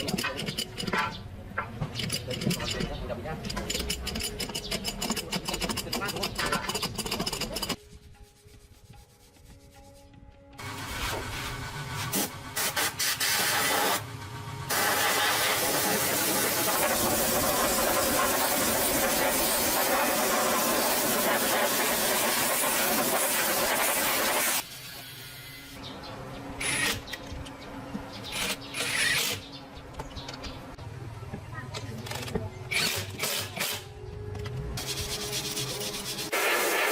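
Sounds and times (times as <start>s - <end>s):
short hissing bursts: 14.7s - 24.6s, 36.3s - 36.9s
loud steady hiss: 14.7s - 24.8s, 36.2s - 36.9s.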